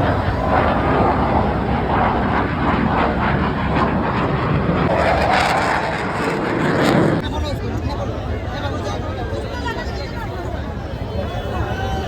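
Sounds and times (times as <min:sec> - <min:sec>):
airplane engine flying past: 0:00.0 - 0:08.2.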